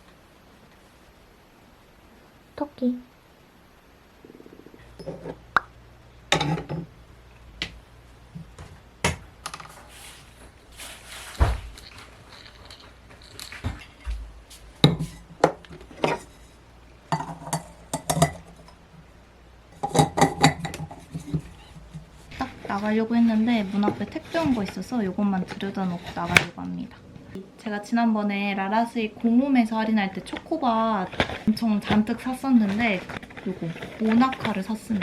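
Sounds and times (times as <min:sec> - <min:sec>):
household objects clicking and knocking: 0:11.2 - 0:16.4, 0:17.1 - 0:18.9, 0:19.8 - 0:26.5.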